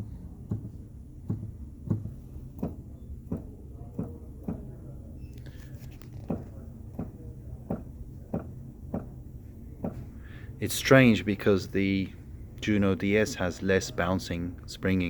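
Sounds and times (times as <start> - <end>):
piano keys thumping: 0.0 - 4.8.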